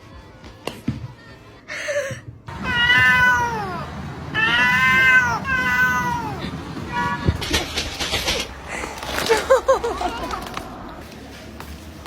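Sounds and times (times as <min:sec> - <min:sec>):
cat meowing: 0:02.6 - 0:03.8, 0:04.4 - 0:07.3.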